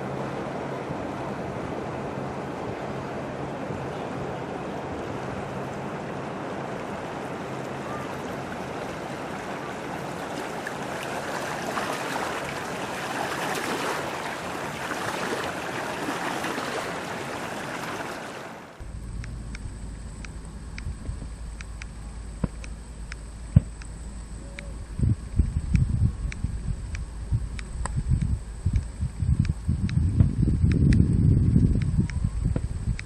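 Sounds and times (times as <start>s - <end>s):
waves washing onto beach: 0.0s - 18.8s
steady low rumble: 18.8s - 33.0s
wind on microphone: 23.3s - 33.0s.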